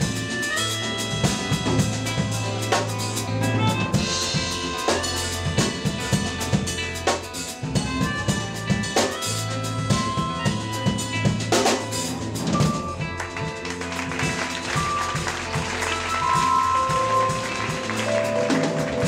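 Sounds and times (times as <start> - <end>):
drum kit playing: 0.0 - 19.0
electric bass notes: 0.0 - 19.0
guitar tones: 0.0 - 19.0
keyboard tones: 7.9 - 13.2, 14.8 - 19.0.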